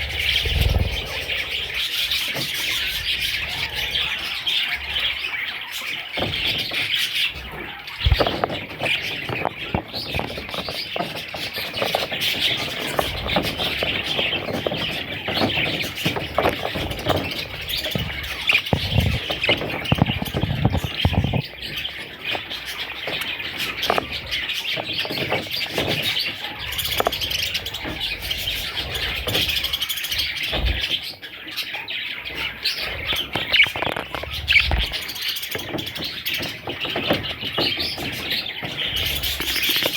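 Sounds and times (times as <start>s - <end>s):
budgerigars chirping and chattering: 0.0s - 39.9s
short knocks and thumps: 8.0s - 26.2s.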